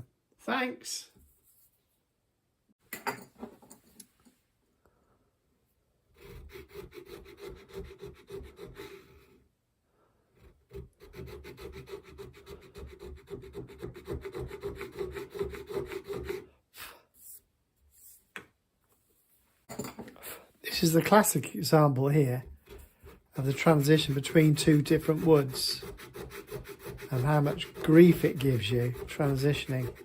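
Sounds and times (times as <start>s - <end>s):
checkering tool rasping wood: 6.1s - 9.4s, 10.2s - 16.6s, 22.4s - 30.0s.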